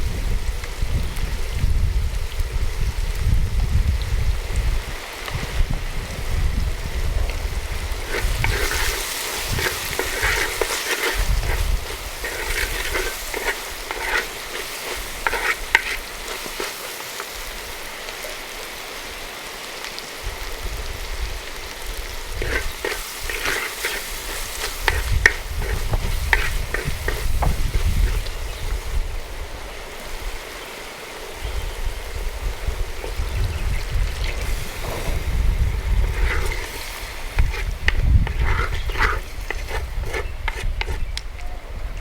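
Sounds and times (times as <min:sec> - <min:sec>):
food sizzling in a pan: 0:00.0 - 0:41.2
metal spoon scraping a pan: 0:08.0 - 0:17.6, 0:22.3 - 0:28.8, 0:34.1 - 0:41.2.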